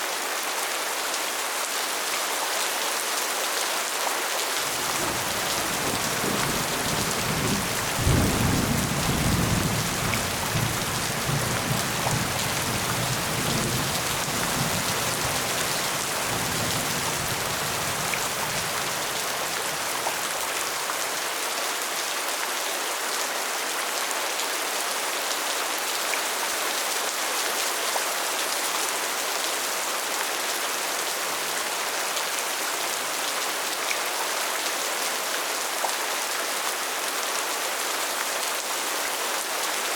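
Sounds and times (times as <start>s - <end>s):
steady rain falling: 0.0s - 39.9s
thunder rumbling: 4.7s - 18.7s.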